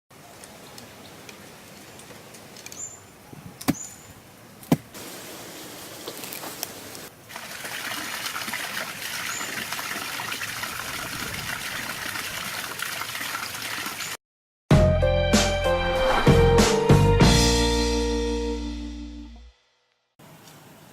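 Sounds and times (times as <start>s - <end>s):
water splashing over waterfall: 6.7s - 14.2s.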